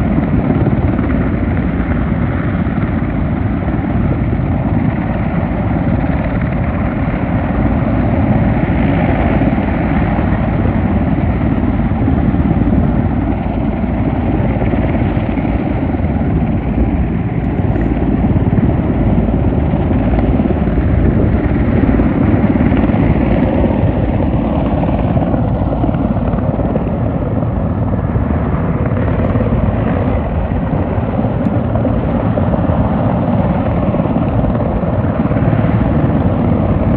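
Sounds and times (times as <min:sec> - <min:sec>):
helicopter engine noise: 0:00.0 - 0:36.9
helicopter rotor beating: 0:00.0 - 0:36.9.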